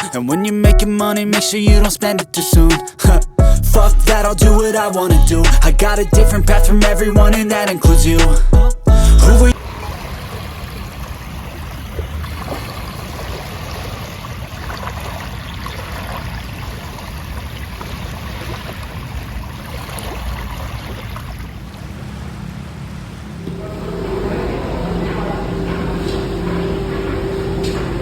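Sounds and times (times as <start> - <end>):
low rumble: 3.4 - 9.6, 23.4 - 28.0
rushing noise: 22.4 - 28.0.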